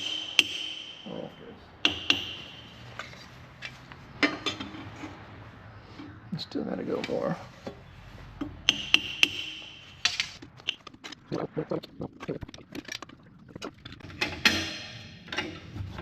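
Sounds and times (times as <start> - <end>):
ringing metallic tone: 0.0 - 3.3, 8.7 - 10.1.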